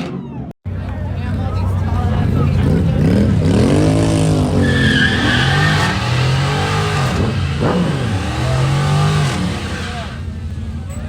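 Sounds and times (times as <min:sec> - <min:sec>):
car engine revving: 0:01.2 - 0:11.0
tires squealing: 0:02.2 - 0:11.0.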